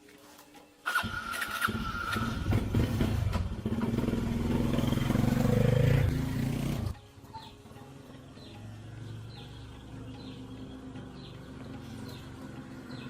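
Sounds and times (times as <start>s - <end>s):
motorcycle engine revving: 0.9s - 7.0s.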